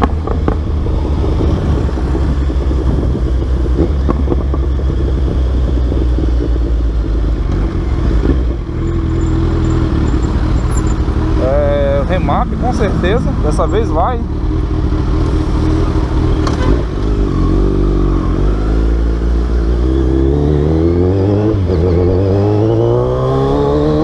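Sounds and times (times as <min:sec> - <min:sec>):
motorcycle engine droning: 0:00.0 - 0:24.0.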